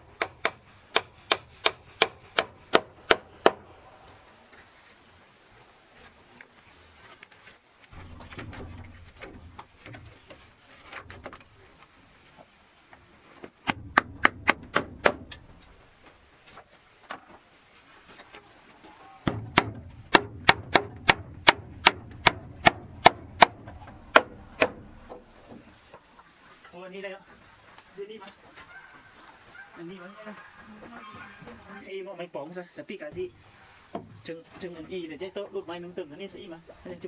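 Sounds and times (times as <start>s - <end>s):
hammering on wood: 0.0s - 4.1s, 13.6s - 16.0s, 19.2s - 25.6s.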